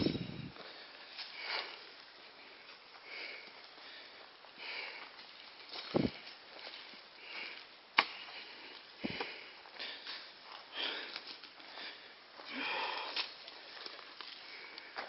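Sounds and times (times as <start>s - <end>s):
person breathing in puffs: 0.6s - 1.9s, 7.2s - 15.0s.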